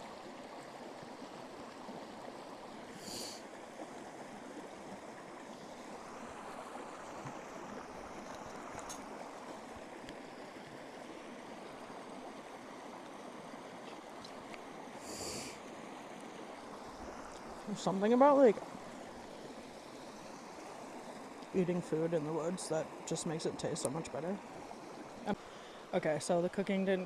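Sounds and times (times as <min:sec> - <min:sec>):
short high hiss: 0:03.0 - 0:03.4, 0:15.0 - 0:15.6.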